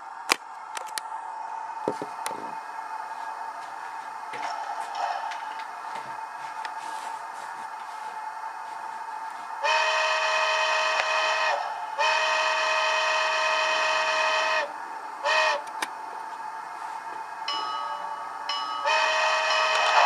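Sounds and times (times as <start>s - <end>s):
steady hum: 0.0s - 20.0s
model steam whistle blasts: 9.6s - 15.7s, 18.8s - 20.0s.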